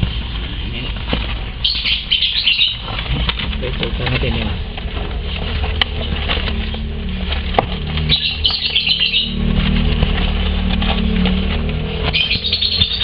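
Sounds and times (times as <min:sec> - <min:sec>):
bird chicks chirping: 0:00.0 - 0:13.0
small rustles and clicks: 0:00.0 - 0:13.0
low hum: 0:02.7 - 0:13.0.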